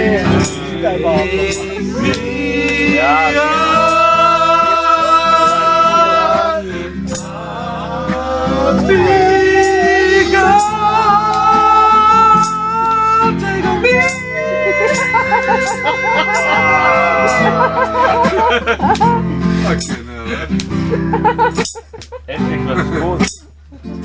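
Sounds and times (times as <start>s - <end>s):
person singing long notes: 0.0s - 18.4s
sharp percussive hits: 0.3s - 0.8s, 1.5s - 2.9s, 3.7s - 4.3s, 5.4s - 5.9s, 7.1s - 7.4s, 9.6s - 9.9s, 10.6s - 11.4s, 12.3s - 12.7s, 14.0s - 17.6s, 21.5s - 22.1s, 23.2s - 23.6s.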